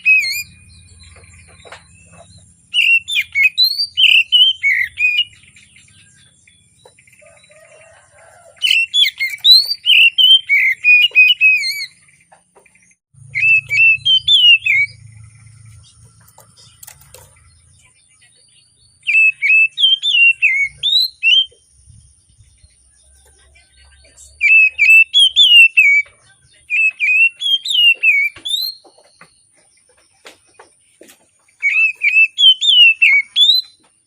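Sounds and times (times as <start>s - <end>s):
bird singing warbling whistles: 0.0s - 0.6s, 2.7s - 5.4s, 8.6s - 12.0s, 13.3s - 15.0s, 19.1s - 21.6s, 24.4s - 26.0s, 26.7s - 28.8s, 31.6s - 33.8s.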